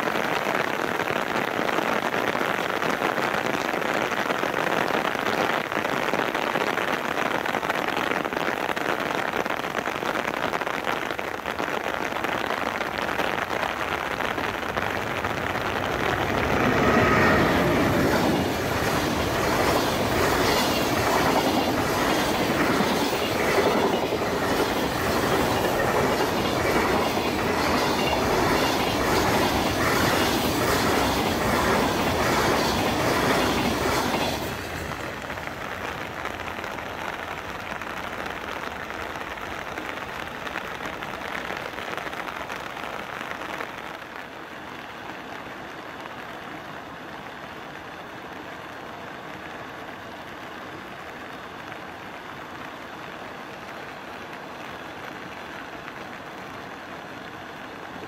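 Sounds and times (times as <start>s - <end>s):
train wagons clattering over rail joints: 15.6s - 35.2s.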